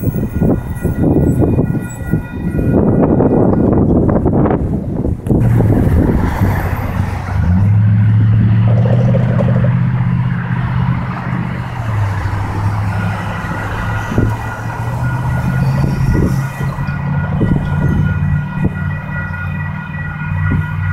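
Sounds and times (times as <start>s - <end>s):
vehicle passing with low drone: 5.3s - 20.9s.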